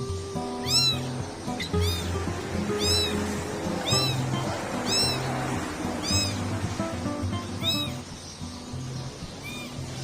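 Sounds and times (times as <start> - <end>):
background music: 0.0 - 10.0
kitten mewing: 0.6 - 5.3, 6.0 - 6.5, 7.6 - 8.0, 9.4 - 9.8.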